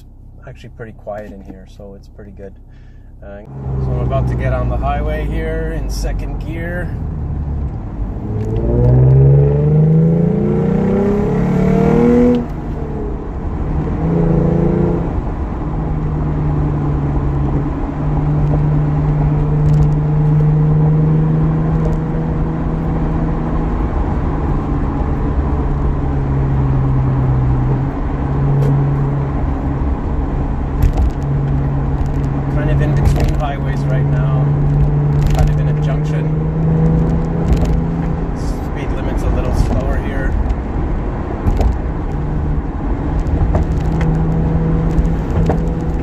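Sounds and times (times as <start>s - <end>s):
car engine revving: 2.8s - 46.0s.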